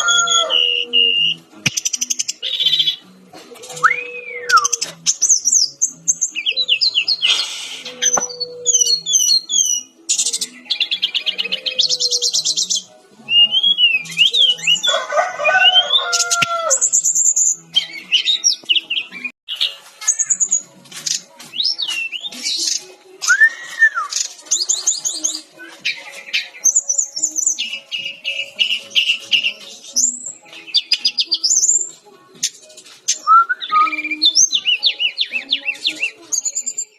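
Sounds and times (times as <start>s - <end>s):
bird singing trills and whistles: 0.0s - 3.1s, 3.7s - 14.9s, 15.6s - 36.9s.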